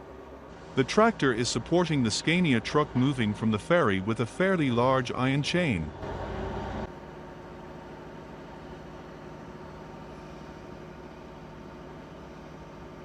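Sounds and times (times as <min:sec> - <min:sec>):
heavy vehicle engine running: 0:00.5 - 0:06.9.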